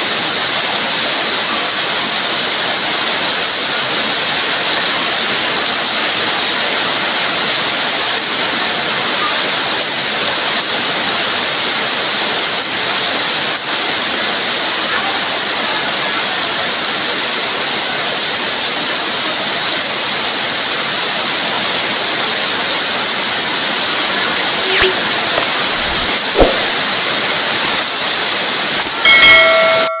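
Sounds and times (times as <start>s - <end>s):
heavy rain: 0.0s - 30.0s
electronic chime sound effect: 29.1s - 30.0s.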